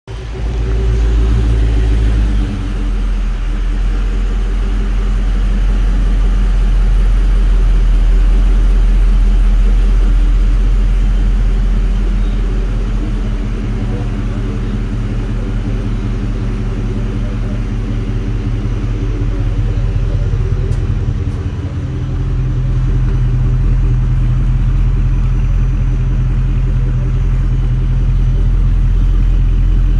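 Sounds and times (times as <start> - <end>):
car engine idling: 0.1 - 29.9.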